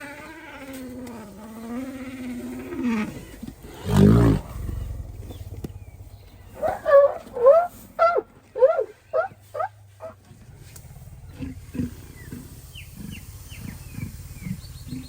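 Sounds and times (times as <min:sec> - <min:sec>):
elephant low blast: 0:06.5 - 0:10.2
elephant trumpeting call: 0:06.5 - 0:10.2.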